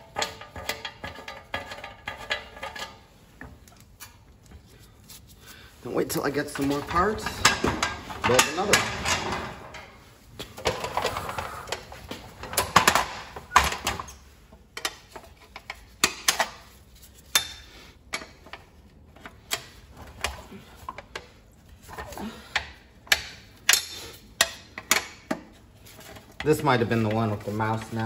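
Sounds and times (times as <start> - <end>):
rustling of handled parts: 0.0 - 28.0
metal tools clinking and knocking: 6.4 - 9.9.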